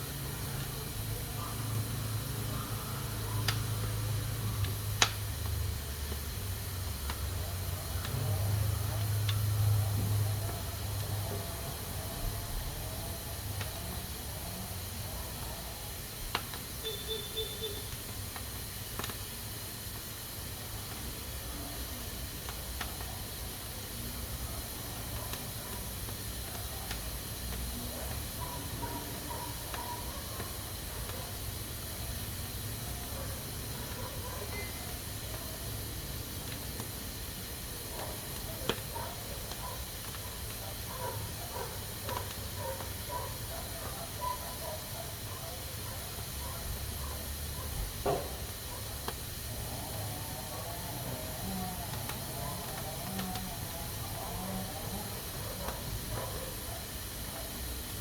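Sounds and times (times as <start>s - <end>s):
pressure cooker hissing steam: 0.0s - 58.0s.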